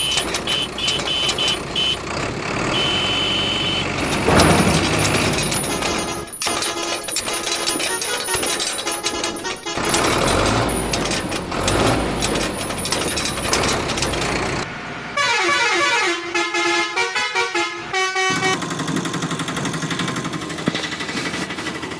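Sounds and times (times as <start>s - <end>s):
vehicle horn playing notes: 0.0s - 4.4s, 15.2s - 18.6s
engine running: 0.0s - 15.0s
heavy vehicle noise: 0.0s - 21.9s.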